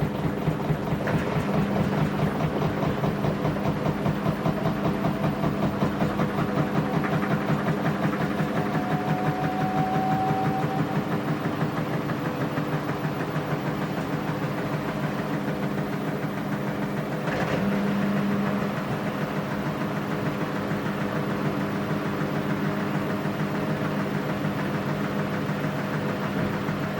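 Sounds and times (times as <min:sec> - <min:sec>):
washing machine humming: 0:00.0 - 0:26.9.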